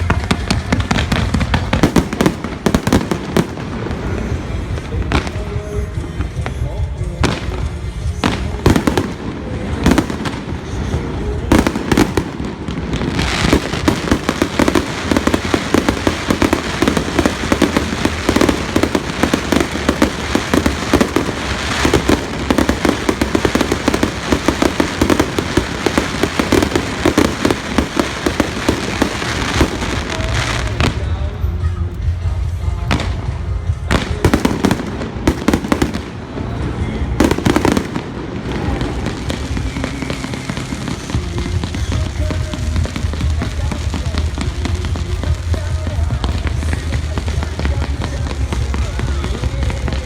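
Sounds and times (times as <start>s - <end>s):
crackling firework bursts: 0.0s - 50.0s
fireworks bangs: 0.0s - 50.0s.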